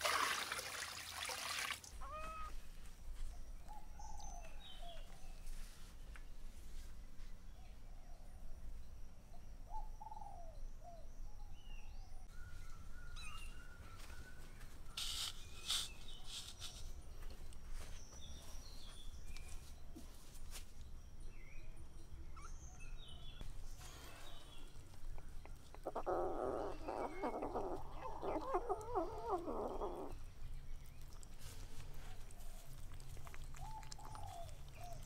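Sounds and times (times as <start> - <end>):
birds chirping: 2.0 - 5.8, 11.4 - 19.8, 21.6 - 35.0.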